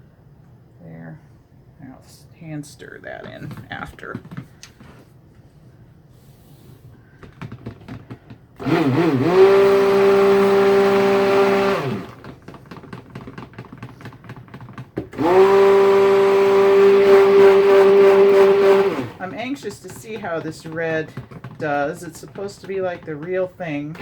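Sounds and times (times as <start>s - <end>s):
stick blender motor whining: 8.6s - 14.2s, 15.0s - 24.0s.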